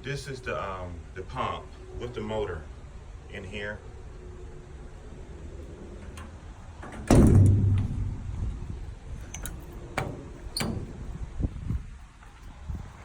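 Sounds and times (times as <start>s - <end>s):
latch clicks: 6.0s - 8.5s, 9.2s - 11.2s
metal door slamming shut: 6.2s - 11.2s.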